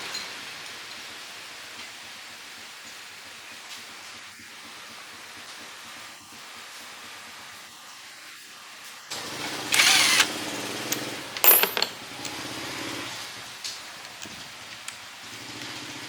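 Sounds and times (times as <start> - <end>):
small motor running: 9.1 - 11.0.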